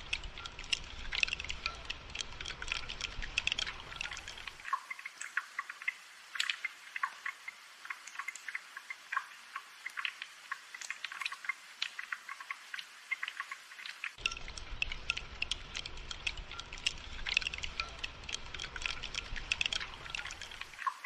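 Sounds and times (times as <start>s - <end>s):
rain dripping: 0.0s - 21.0s.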